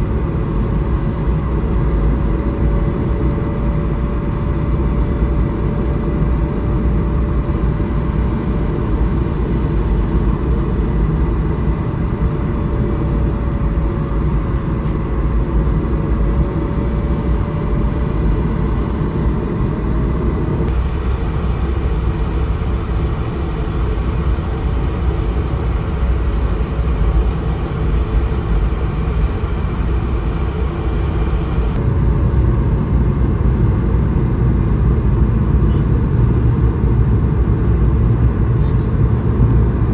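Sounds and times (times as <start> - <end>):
jet engine drone: 0.0 - 39.9
cabin airflow rush: 9.2 - 32.1.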